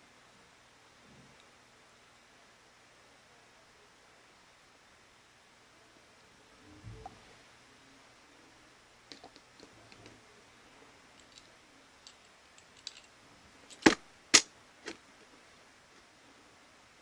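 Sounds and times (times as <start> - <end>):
small tool parts clicking: 12.8 - 13.1, 13.7 - 14.0.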